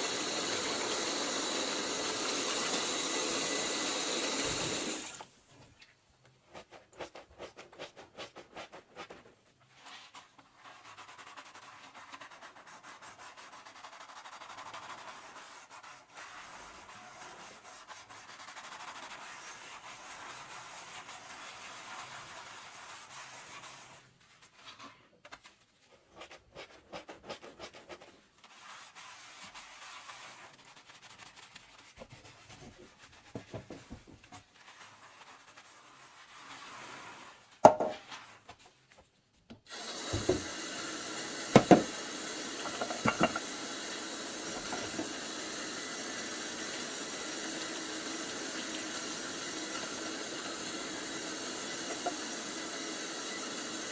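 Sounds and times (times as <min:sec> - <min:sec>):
sponge scrubbing dishes: 0:00.0 - 0:05.2, 0:06.4 - 0:24.9, 0:25.9 - 0:38.4, 0:39.7 - 0:45.6, 0:48.3 - 0:52.6.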